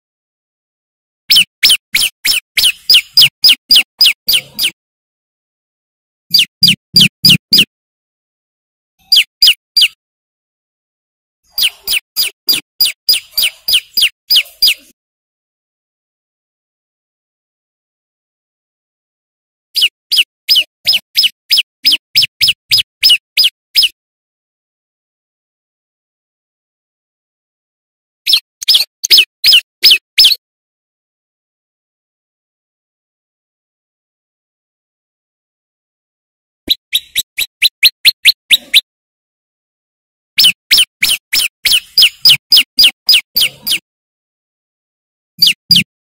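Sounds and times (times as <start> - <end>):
bird singing high downward notes: 1.3 - 4.8, 6.3 - 7.7, 9.0 - 10.0, 11.5 - 15.0, 19.8 - 24.0, 28.3 - 30.4, 36.7 - 38.8, 40.4 - 43.8, 45.4 - 45.9.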